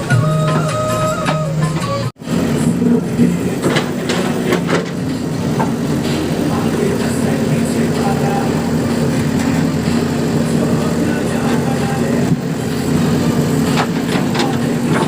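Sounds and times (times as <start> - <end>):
music: 0.0 - 2.7, 10.5 - 12.3
diesel engine running: 0.0 - 15.0
metallic knocks and clanks: 0.4 - 7.3, 13.7 - 15.0.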